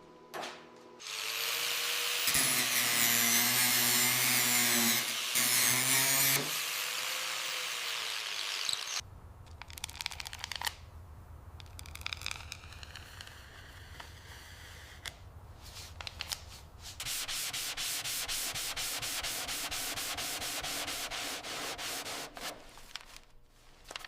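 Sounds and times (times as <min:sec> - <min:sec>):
power tool whirring: 0:01.0 - 0:09.0.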